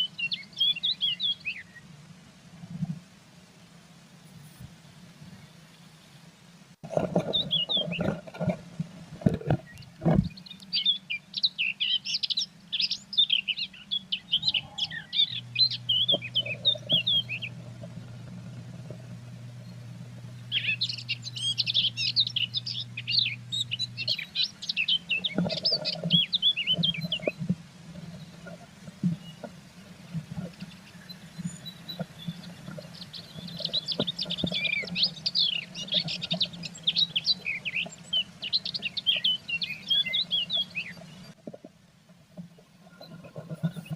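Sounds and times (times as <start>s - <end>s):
steady low hum: 6.5s - 43.9s
bird knocking and scratching: 6.9s - 10.3s
bird chirping rapidly: 7.2s - 8.1s, 9.6s - 27.4s, 30.4s - 41.4s.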